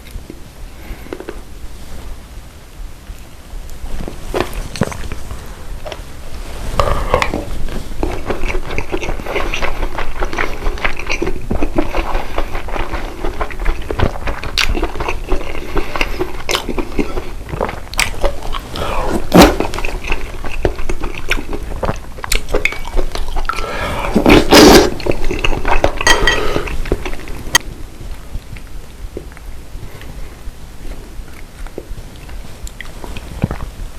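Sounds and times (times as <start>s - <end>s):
person chewing: 0.0s - 1.5s, 3.1s - 30.3s, 30.9s - 33.8s.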